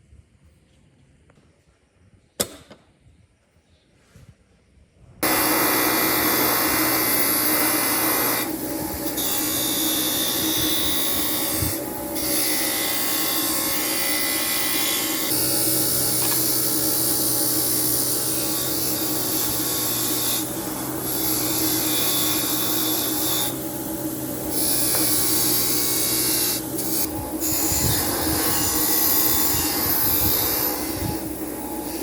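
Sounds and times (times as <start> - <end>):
power tool grinding: 5.2 - 32.0.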